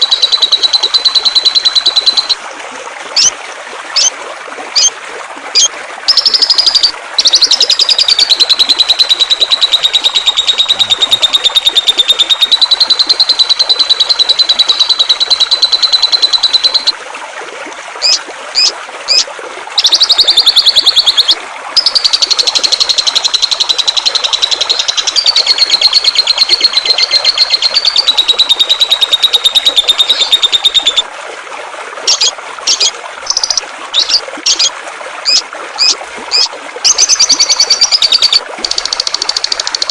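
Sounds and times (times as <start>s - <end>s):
bird sharp chirps: 0.0s - 2.4s, 5.6s - 16.9s, 19.8s - 31.0s, 32.1s - 34.7s
songbird buzzy trills: 0.0s - 2.4s, 3.9s - 4.1s, 5.6s - 17.0s, 18.0s - 31.1s, 32.1s - 39.9s
flowing water: 0.0s - 39.9s.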